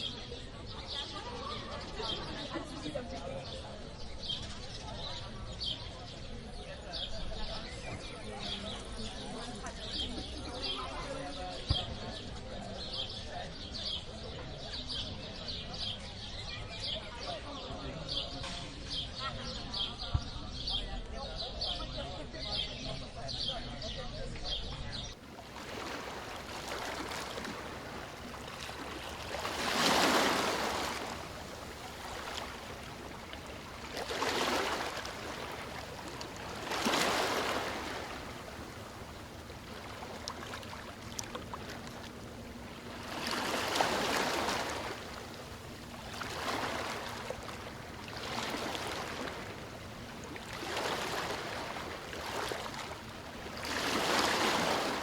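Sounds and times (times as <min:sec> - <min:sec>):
small waves washing onto beach: 0:25.2 - 0:55.0.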